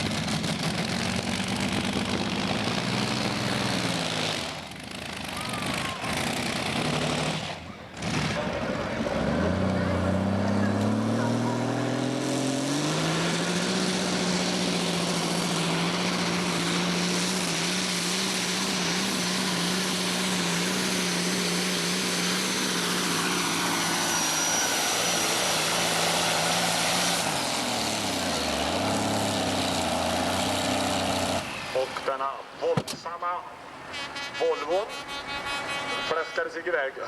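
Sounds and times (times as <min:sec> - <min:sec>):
engine at full throttle: 0:00.0 - 0:32.2.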